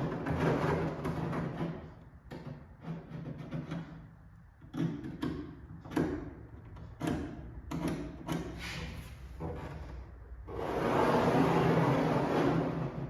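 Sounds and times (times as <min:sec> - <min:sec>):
tools and parts knocking: 0:00.0 - 0:08.6.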